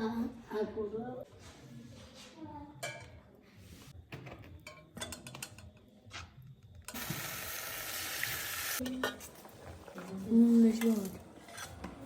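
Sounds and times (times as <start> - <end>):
food sizzling in hot oil: 6.9 - 8.8.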